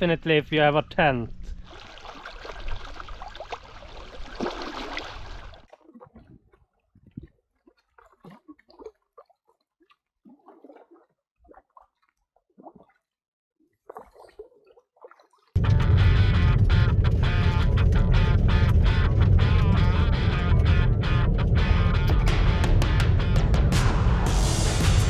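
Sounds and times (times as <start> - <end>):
water rushing: 0.0 - 5.6
water gurgles and splashes: 1.3 - 15.6.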